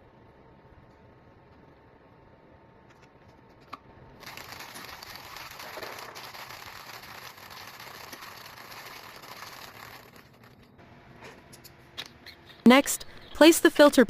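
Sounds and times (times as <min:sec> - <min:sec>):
coffee grinder grinding beans: 0:04.2 - 0:10.7.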